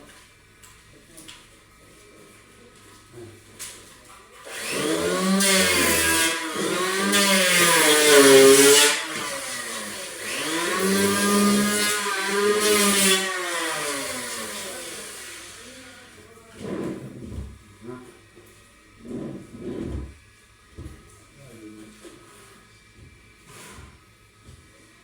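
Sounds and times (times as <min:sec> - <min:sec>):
angle grinder cutting: 0:04.4 - 0:16.1.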